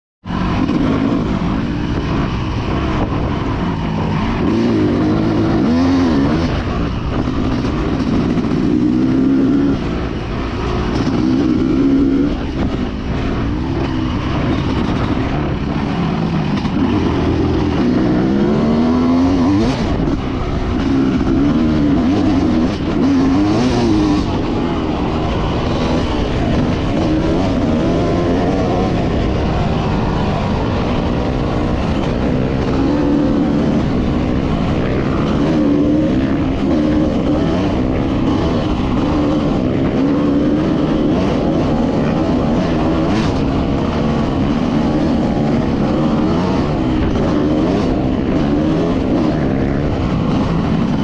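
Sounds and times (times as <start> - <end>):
dirt bike engine revving: 0.2 - 51.0.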